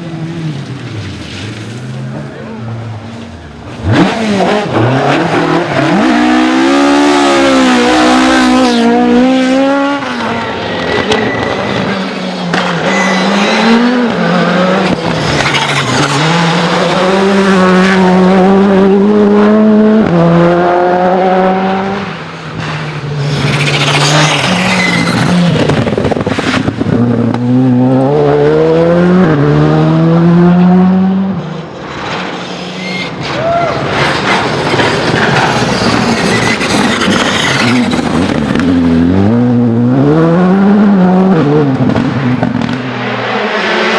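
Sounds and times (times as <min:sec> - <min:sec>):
rally car engines revving: 0:00.0 - 0:43.9
tyre squeal: 0:10.1 - 0:14.1, 0:15.1 - 0:16.6, 0:23.2 - 0:26.6, 0:32.4 - 0:38.3.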